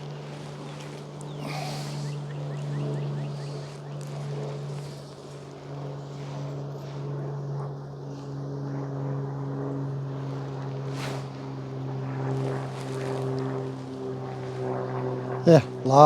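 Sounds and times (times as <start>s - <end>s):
bees buzzing: 0.0s - 7.1s.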